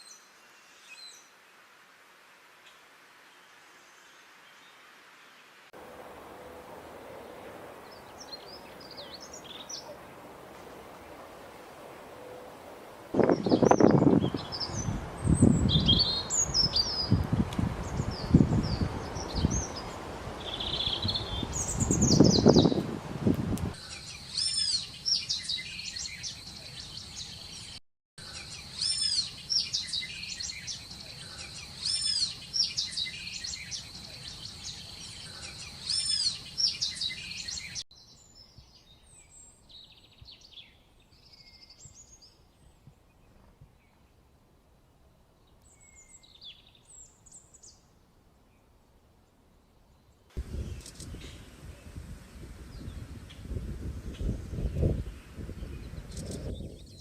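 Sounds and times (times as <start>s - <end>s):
small birds chirping: 7.4s - 11.2s, 13.2s - 22.8s, 23.7s - 44.0s, 49.7s - 57.0s.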